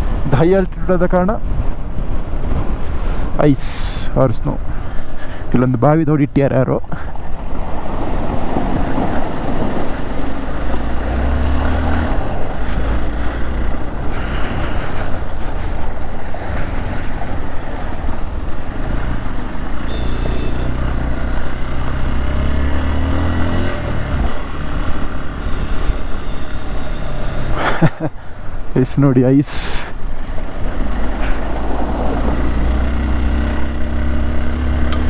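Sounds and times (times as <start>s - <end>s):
motorcycle engine running: 8.8s - 27.8s, 30.0s - 35.0s.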